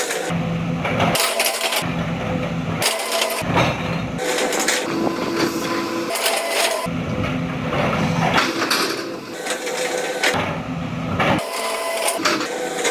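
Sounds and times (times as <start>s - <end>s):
excavator engine and hydraulics whine: 0.0s - 12.9s
metallic knocks and clanks: 3.4s - 6.0s.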